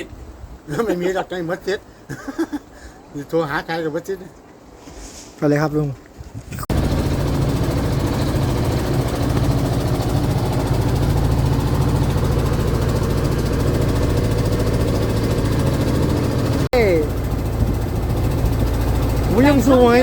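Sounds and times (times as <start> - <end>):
boat engine running: 6.7 - 20.0.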